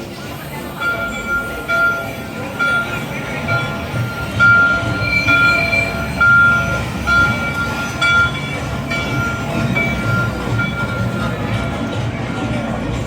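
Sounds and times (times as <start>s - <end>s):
cartoon train whistle toots: 4.0s - 8.4s.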